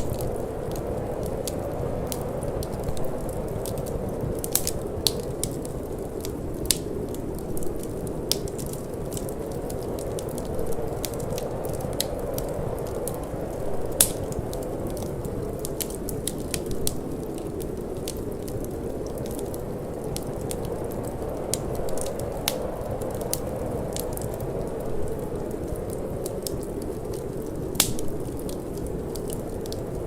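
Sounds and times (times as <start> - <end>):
low rush of wind: 0.0 - 30.0
wood fire crackling: 0.0 - 30.0.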